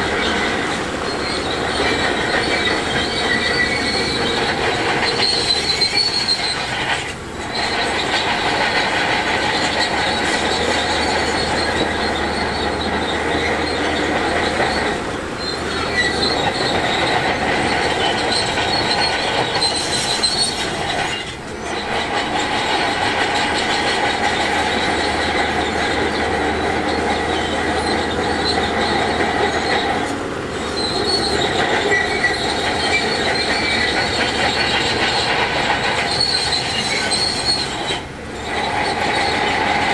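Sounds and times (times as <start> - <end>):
bulldozer diesel engine: 0.0 - 39.9
steel tracks squealing and clanking: 0.0 - 39.9.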